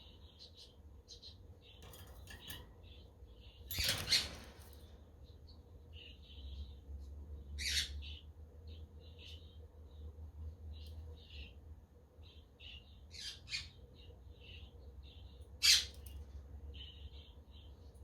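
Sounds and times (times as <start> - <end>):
budgerigars chirping: 15.6 - 16.0.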